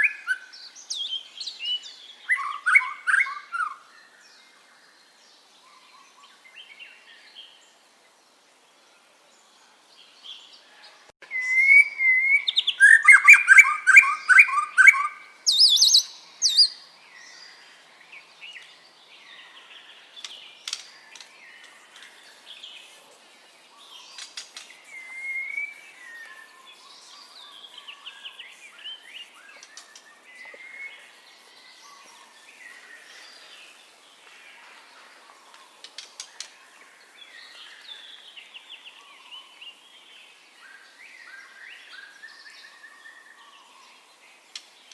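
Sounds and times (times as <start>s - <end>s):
bird singing whistled notes: 0.0s - 4.6s, 11.2s - 33.8s, 40.6s - 44.2s.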